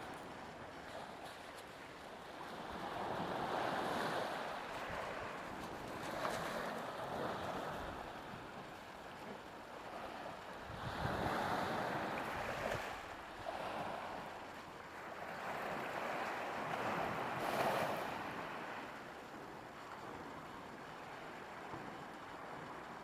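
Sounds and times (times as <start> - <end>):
sea waves washing onto shore: 0.0 - 23.0
wind noise: 10.6 - 14.2.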